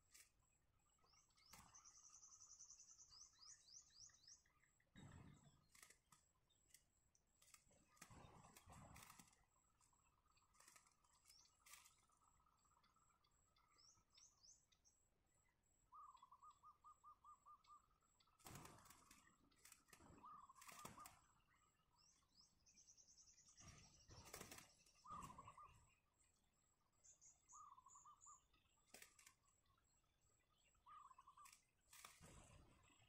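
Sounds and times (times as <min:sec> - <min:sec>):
faint bird calls: 0:07.4 - 0:33.0.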